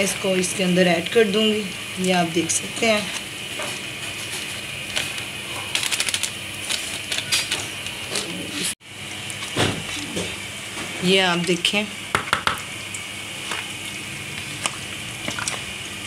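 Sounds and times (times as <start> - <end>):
food sizzling: 0.0 - 16.0.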